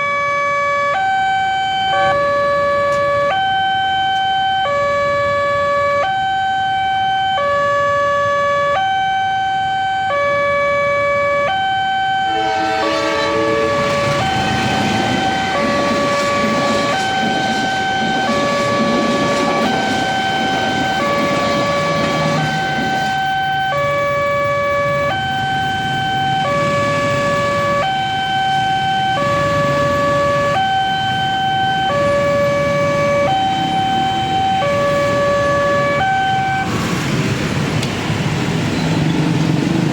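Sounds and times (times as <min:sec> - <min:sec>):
level crossing alarm two-tone: 0:00.8 - 0:05.0, 0:11.4 - 0:36.7
passing train rumble: 0:10.5 - 0:39.9.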